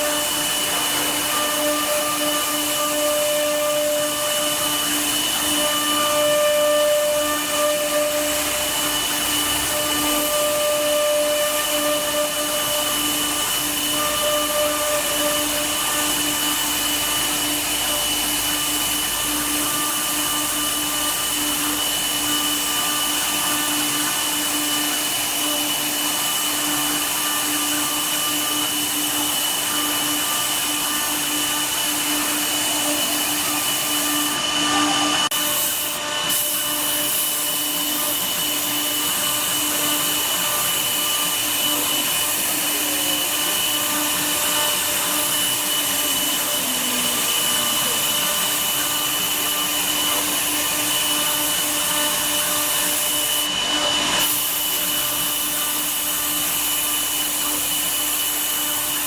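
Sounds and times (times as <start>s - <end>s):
router spindle cutting wood: 0.0s - 59.0s.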